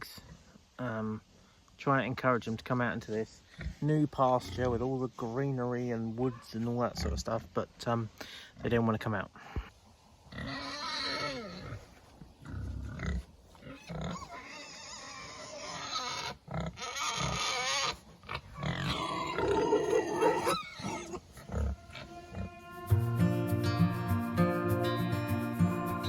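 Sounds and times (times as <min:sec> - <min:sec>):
pigs grunting: 0:03.5 - 0:04.9, 0:06.2 - 0:07.4, 0:10.3 - 0:22.6.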